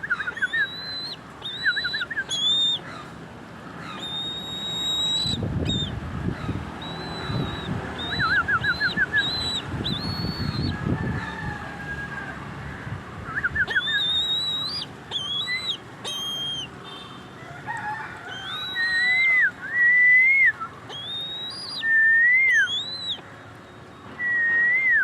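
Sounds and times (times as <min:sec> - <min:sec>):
bird calls whistling and trilling: 0:00.0 - 0:02.9, 0:03.8 - 0:10.8, 0:13.3 - 0:17.1, 0:18.3 - 0:25.0.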